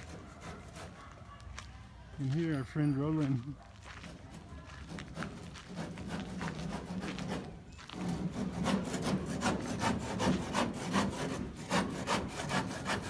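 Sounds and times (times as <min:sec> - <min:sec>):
hand saw cutting wood: 0:00.0 - 0:01.1, 0:04.8 - 0:13.0.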